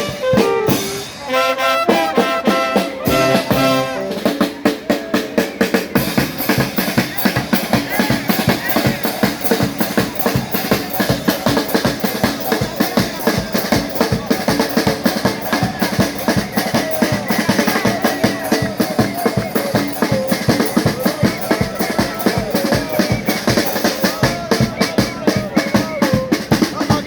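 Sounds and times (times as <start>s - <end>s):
fast drum-kit beat: 0.0s - 27.0s
wind instruments playing melody: 0.0s - 27.0s.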